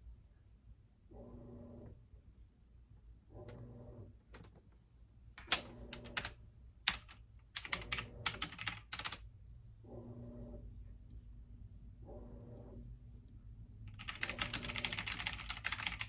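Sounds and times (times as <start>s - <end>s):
washing machine humming: 1.1s - 2.1s, 3.2s - 4.6s, 5.4s - 16.0s
typing on computer keyboard: 5.4s - 9.2s, 13.9s - 16.0s.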